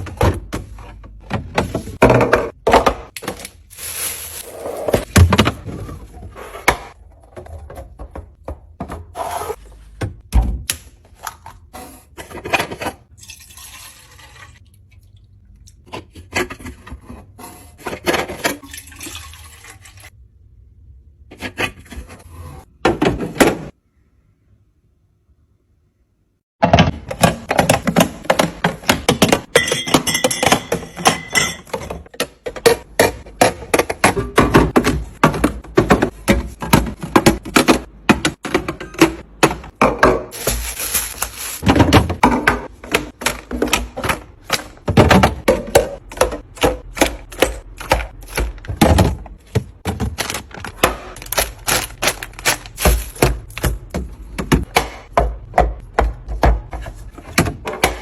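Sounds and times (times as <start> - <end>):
food containers clicking and knocking: 26.6 - 58.0
packaging rustle: 40.4 - 41.6.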